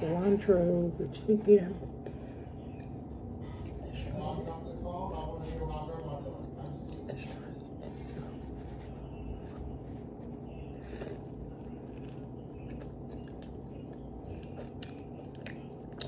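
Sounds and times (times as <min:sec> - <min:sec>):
low background hum: 0:00.0 - 0:16.0
biting and chewing a sandwich: 0:05.8 - 0:16.0.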